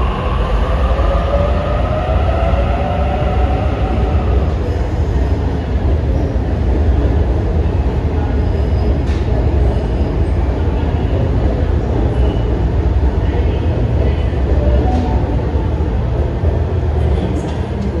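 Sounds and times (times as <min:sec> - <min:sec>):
train rumbling in station: 0:00.0 - 0:18.0.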